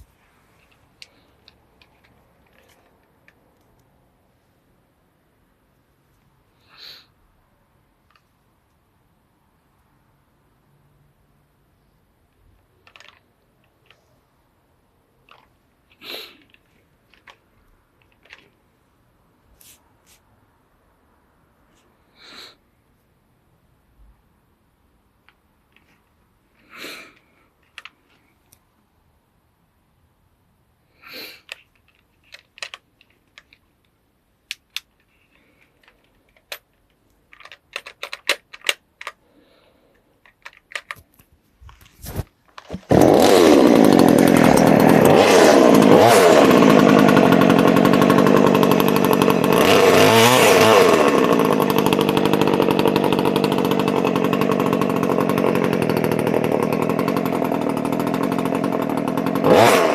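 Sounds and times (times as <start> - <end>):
chainsaw engine running and revving: 42.8 - 59.9.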